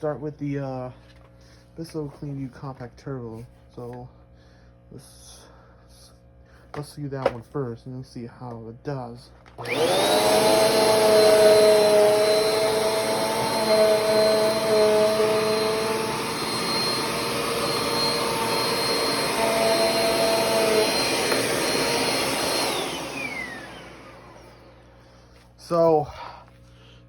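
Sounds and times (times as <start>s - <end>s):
vacuum cleaner motor whine: 9.5s - 26.0s.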